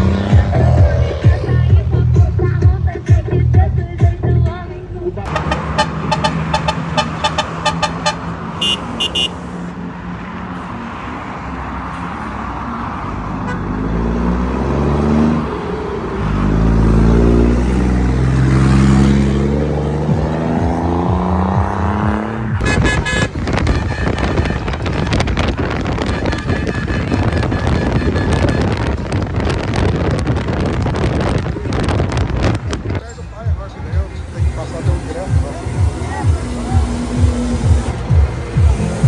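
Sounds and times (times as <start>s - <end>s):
road noise: 0.0s - 39.0s
truck engine accelerating: 0.0s - 39.0s
wind buffeting on microphone: 22.5s - 39.0s.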